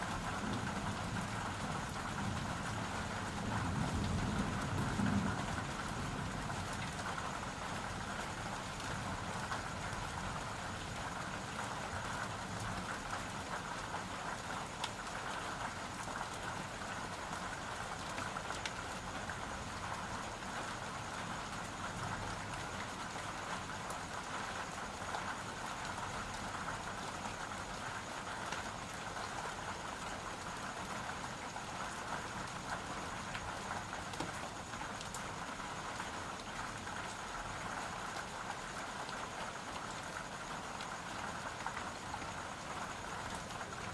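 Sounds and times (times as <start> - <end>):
steady rain hiss: 0.0 - 43.9
raindrops tapping: 33.8 - 35.2.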